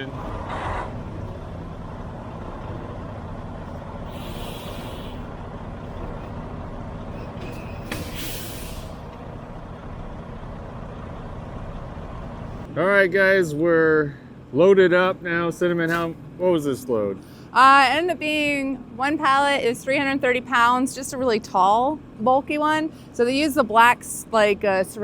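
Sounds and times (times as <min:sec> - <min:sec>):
diesel truck engine running: 0:00.0 - 0:25.0
air brake hiss: 0:04.1 - 0:05.3, 0:07.8 - 0:09.1.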